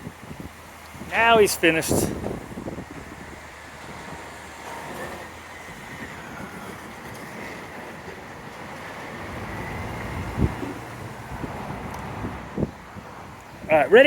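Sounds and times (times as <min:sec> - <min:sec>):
garbage truck engine running: 0:00.0 - 0:13.1.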